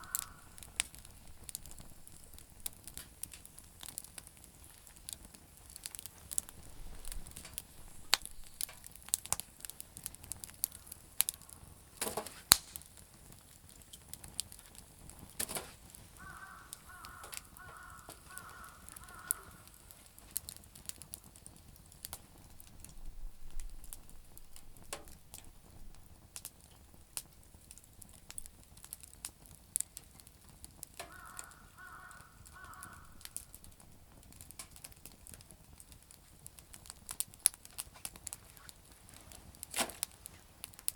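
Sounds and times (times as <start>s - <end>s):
crow cawing: 0.0s - 0.8s, 10.7s - 11.6s, 16.2s - 19.8s, 31.0s - 33.6s
campfire crackling and popping: 0.0s - 40.9s.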